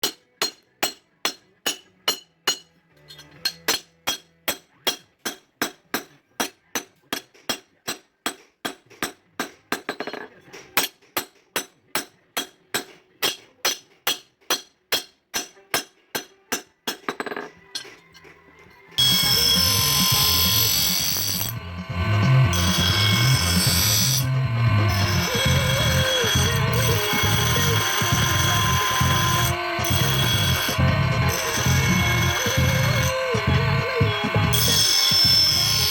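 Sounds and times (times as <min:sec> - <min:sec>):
hammer striking steel on anvil: 0:00.0 - 0:02.7, 0:03.4 - 0:10.2, 0:10.8 - 0:18.0, 0:19.0 - 0:35.9
loud music: 0:19.0 - 0:35.9.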